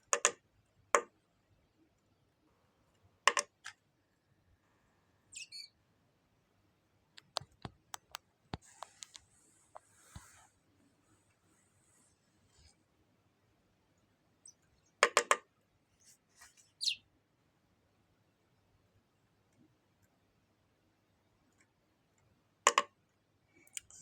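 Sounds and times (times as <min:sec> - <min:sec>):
high bird chirp: 0:05.3 - 0:05.8, 0:16.8 - 0:17.0.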